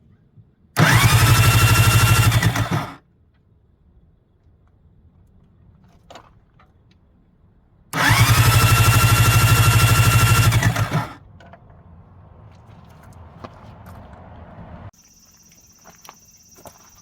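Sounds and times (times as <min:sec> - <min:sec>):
electric starter cranking engine: 0:00.8 - 0:03.0, 0:07.9 - 0:11.2.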